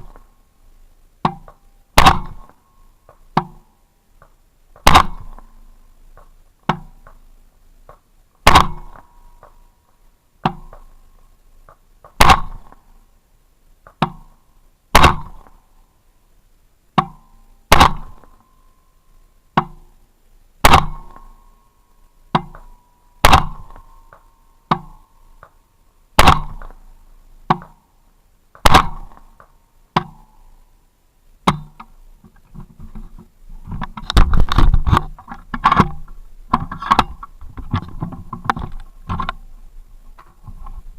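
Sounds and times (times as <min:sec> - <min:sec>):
loud rifle shots: 0:02.0 - 0:02.6, 0:04.8 - 0:05.5, 0:08.4 - 0:09.1, 0:12.2 - 0:12.8, 0:14.9 - 0:15.6, 0:17.7 - 0:18.4, 0:20.6 - 0:21.2, 0:23.2 - 0:23.8, 0:26.2 - 0:26.8, 0:28.6 - 0:29.2
fainter gunshots: 0:04.8 - 0:05.4, 0:12.2 - 0:12.7, 0:17.7 - 0:18.3, 0:26.2 - 0:26.7, 0:28.6 - 0:29.2.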